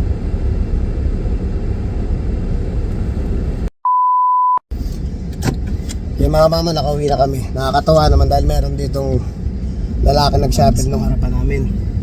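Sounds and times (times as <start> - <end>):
road and engine noise in car: 0.0 - 3.7, 4.7 - 12.0
steady beep tone: 3.8 - 4.6.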